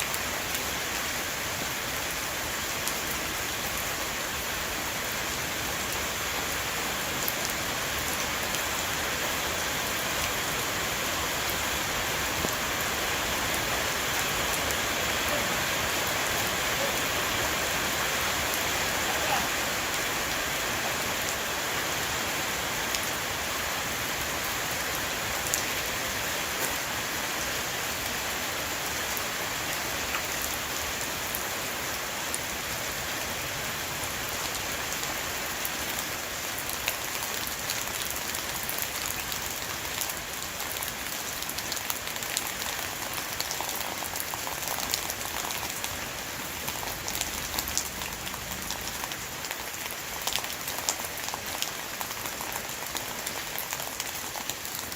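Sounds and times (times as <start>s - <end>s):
rain falling on a roof: 0.0s - 54.9s.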